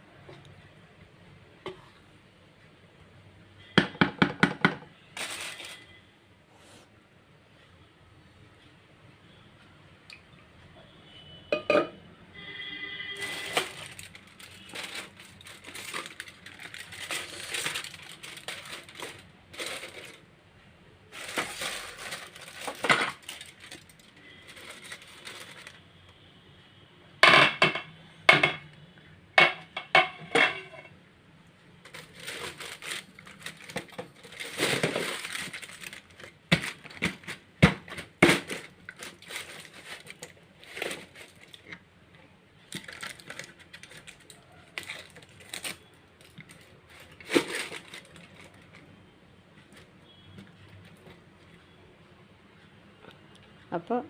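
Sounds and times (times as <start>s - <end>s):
ringing knocks on pot: 11.6s - 12.0s
metal utensil scraping pot: 29.8s - 31.0s.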